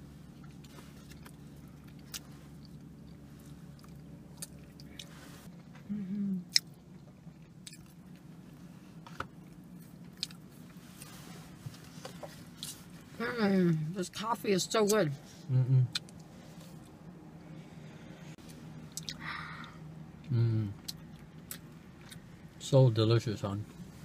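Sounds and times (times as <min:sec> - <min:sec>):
low steady hum: 0:00.0 - 0:24.0
people chewing buns: 0:00.2 - 0:13.0, 0:18.4 - 0:22.3
person humming: 0:05.9 - 0:06.5, 0:15.5 - 0:15.9, 0:20.3 - 0:20.8.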